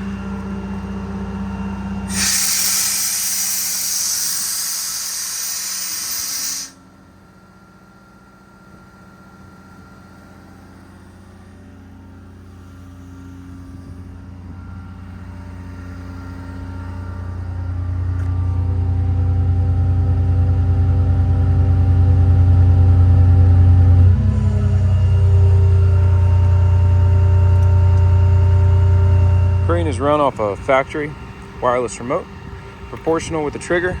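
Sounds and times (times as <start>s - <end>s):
diesel truck engine running: 0.0s - 6.4s, 14.1s - 34.0s
loud air hiss: 2.1s - 6.8s
low rumble: 14.3s - 31.5s.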